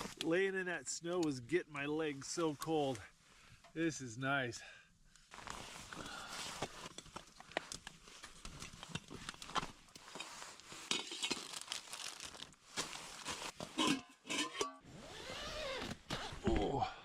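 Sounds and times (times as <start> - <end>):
gear and clothing rustling: 5.2 - 16.5.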